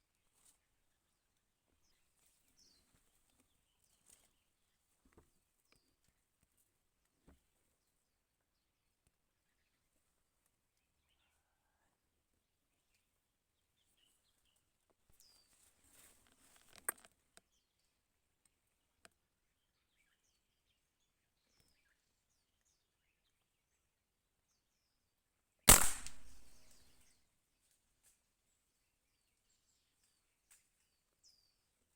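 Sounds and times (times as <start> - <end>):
gunshot: 25.7 - 26.8
sharp click: 25.7 - 26.8.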